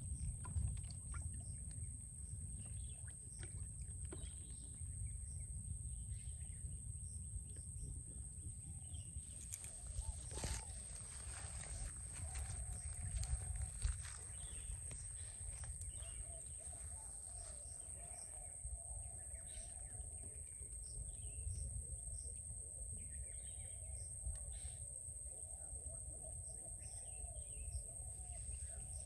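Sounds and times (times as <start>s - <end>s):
low rumble: 0.0s - 18.7s
birds chirping: 8.9s - 21.6s.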